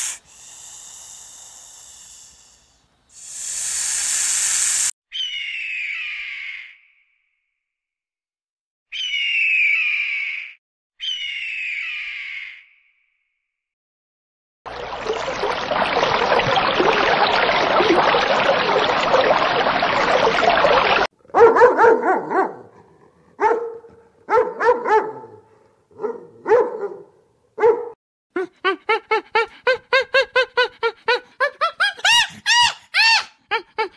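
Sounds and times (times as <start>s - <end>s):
dog barking: 21.3s - 28.0s.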